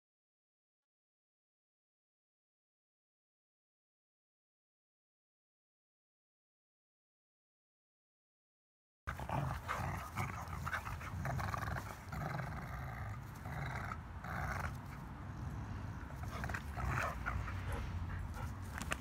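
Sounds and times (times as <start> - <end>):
dogs play-growling: 9.1 - 19.0.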